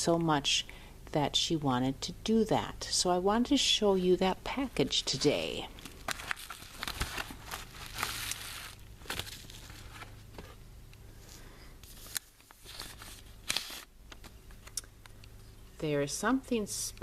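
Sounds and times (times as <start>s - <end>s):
paper wrapping crinkling: 5.8s - 10.6s, 11.8s - 13.9s.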